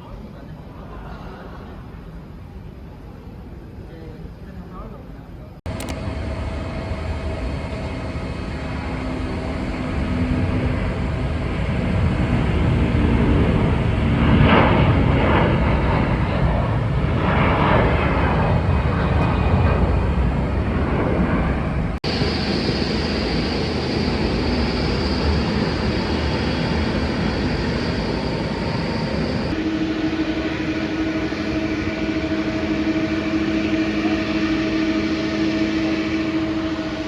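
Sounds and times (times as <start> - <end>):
jet engines rumbling: 0.0 - 37.0
high steady whine: 5.7 - 15.7, 18.6 - 37.0.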